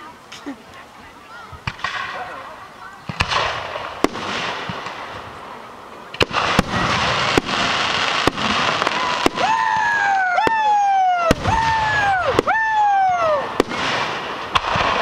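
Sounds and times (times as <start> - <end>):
crackling hiss: 0.0 - 15.0
whistling fireworks: 1.6 - 5.2, 6.0 - 15.0
firework shells bursting: 13.5 - 15.0.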